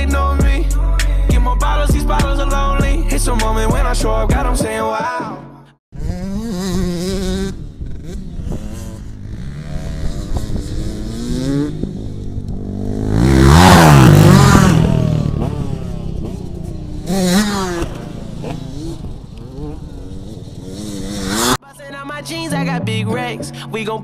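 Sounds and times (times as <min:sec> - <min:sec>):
dirt bike engines revving: 0:06.0 - 0:21.6
dirt bike passing close: 0:06.0 - 0:21.6.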